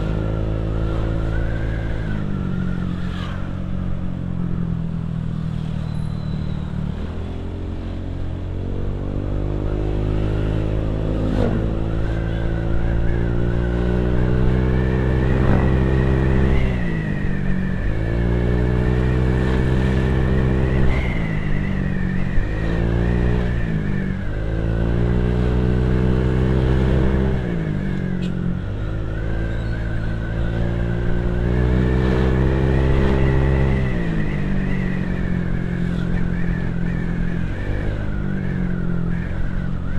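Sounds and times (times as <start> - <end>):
motorcycle engine revving: 8.5 - 39.9.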